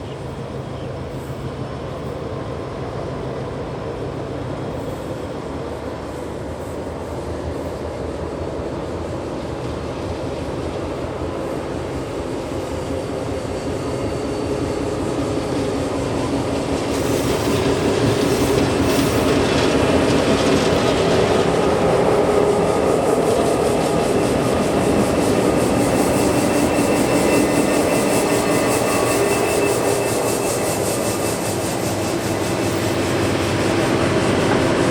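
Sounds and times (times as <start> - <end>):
locomotive engines humming: 0.0 - 34.9
train wheels rolling on rails: 0.0 - 34.9
faint high wheel squeal: 11.4 - 34.9.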